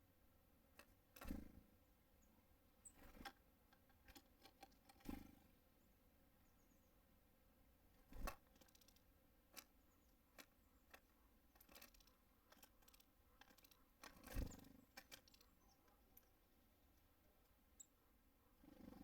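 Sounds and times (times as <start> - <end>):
birds pecking at wooden feeder: 0.6 - 1.6, 2.8 - 5.4, 7.9 - 17.6.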